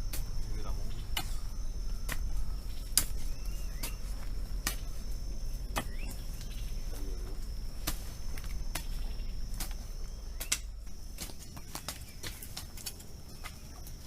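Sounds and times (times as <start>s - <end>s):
faint bird chirps: 0.0s - 7.5s, 8.7s - 14.0s
insects trilling: 0.0s - 14.0s
sharp clicks: 10.4s - 12.0s.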